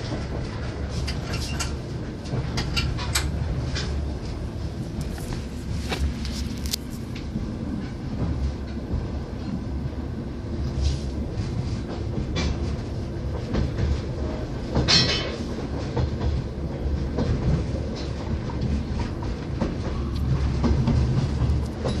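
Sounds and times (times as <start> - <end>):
rattles and clicks: 0.0 - 7.4, 17.1 - 22.0
low rumble of train wheels: 0.0 - 22.0.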